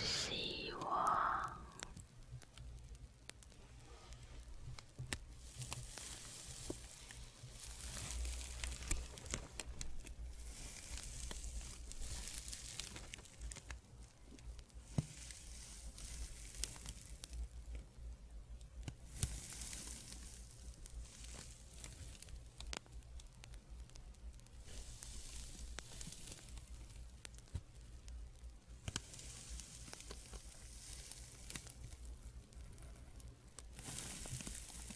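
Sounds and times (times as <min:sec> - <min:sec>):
small crackles: 0:00.7 - 0:34.9.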